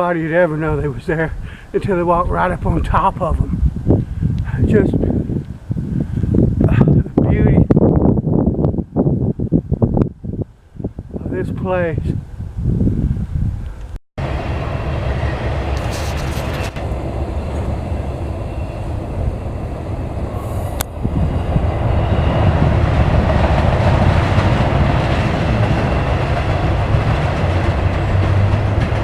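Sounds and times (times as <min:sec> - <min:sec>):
train passing on tracks: 0:14.2 - 0:29.0.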